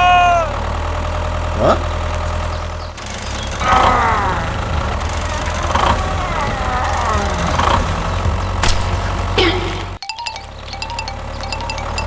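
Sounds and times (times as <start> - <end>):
small engine rumbling: 0.0 - 12.0
squeaky voice-like chatter: 3.6 - 8.2.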